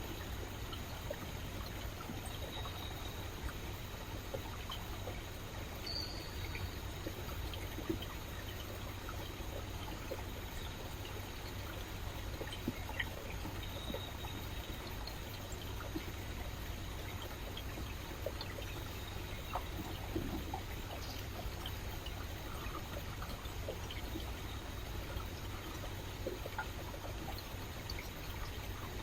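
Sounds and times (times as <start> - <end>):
stream water trickling and splashing: 0.0 - 29.0.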